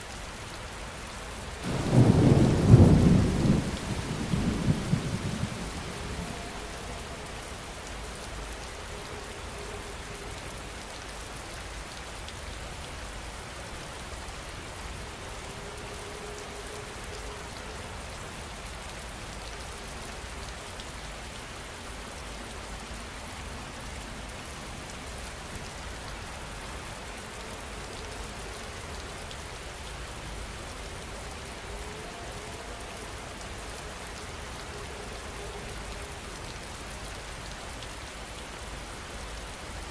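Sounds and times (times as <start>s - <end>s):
heavy rain pattering: 1.5s - 8.9s.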